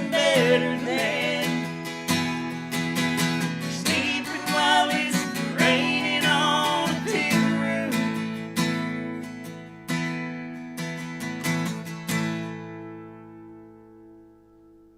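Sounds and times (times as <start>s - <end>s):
person singing: 0.0s - 1.8s, 3.7s - 8.4s
acoustic guitar strumming: 0.0s - 14.9s.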